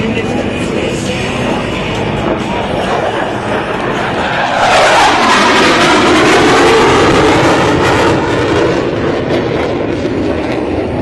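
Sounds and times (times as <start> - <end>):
jet engine roar passing by: 0.0 - 11.0.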